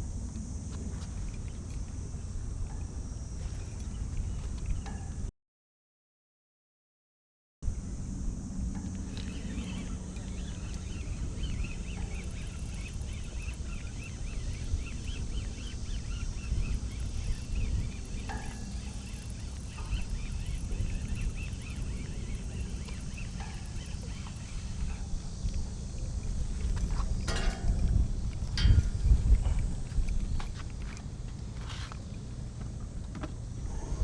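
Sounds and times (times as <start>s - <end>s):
steady low rumble: 7.7s - 34.0s
birds chirping: 9.0s - 34.0s.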